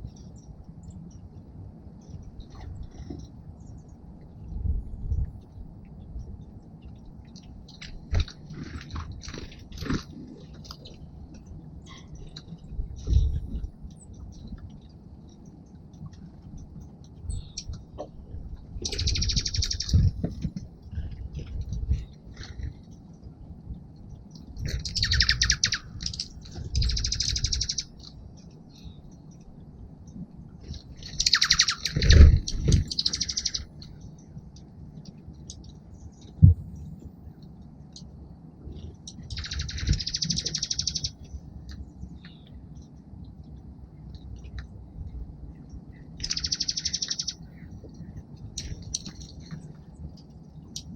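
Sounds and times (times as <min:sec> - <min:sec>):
low rumble: 0:00.0 - 0:50.9
songbirds chipping: 0:00.0 - 0:50.9
bird trill: 0:18.8 - 0:20.5, 0:24.7 - 0:28.1, 0:30.7 - 0:34.0, 0:39.2 - 0:41.3, 0:46.2 - 0:47.8.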